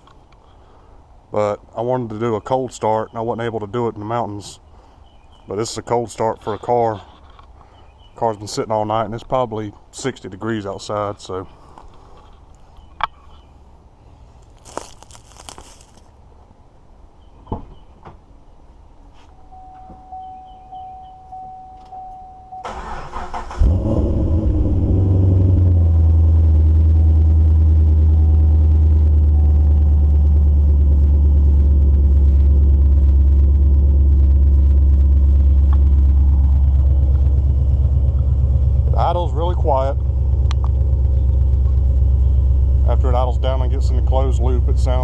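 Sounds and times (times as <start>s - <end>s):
car engine starting and idling: 19.5s - 45.0s
steady tone: 24.2s - 45.0s.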